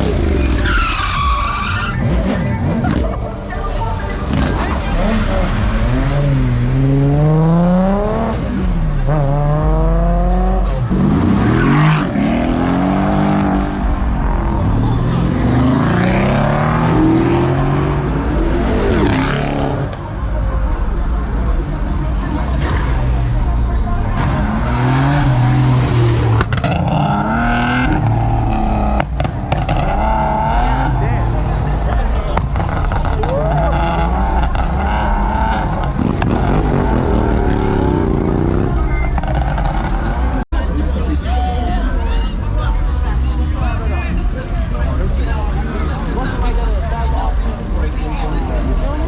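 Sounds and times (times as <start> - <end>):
tyres squealing: 0.0 - 3.0
car engine revving: 0.0 - 40.5.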